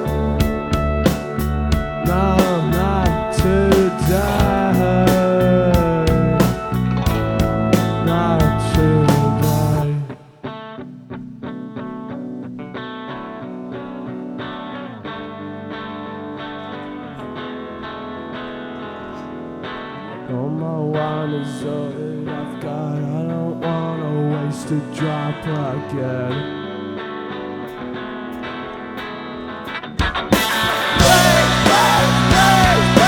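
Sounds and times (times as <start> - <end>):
live band playing: 0.0 - 9.8, 30.0 - 33.0
electric guitar with chorus effect: 0.0 - 33.0.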